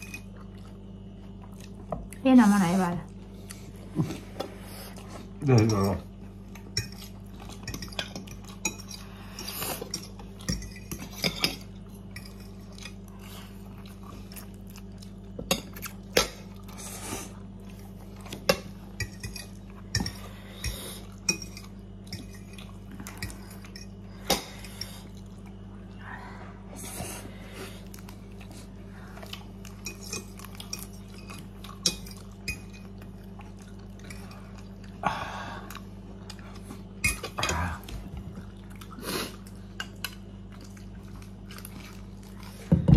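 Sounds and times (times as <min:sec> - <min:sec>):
low electrical hum: 0:00.0 - 0:42.9
utensils clinking against bowl: 0:04.4 - 0:13.2, 0:18.2 - 0:25.1, 0:29.6 - 0:33.0, 0:37.0 - 0:37.9.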